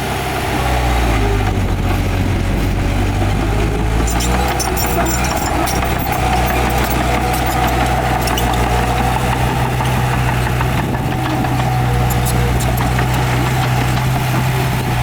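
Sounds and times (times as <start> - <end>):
diesel engine running: 0.0 - 15.0
metal clicks and clanks: 4.0 - 10.4.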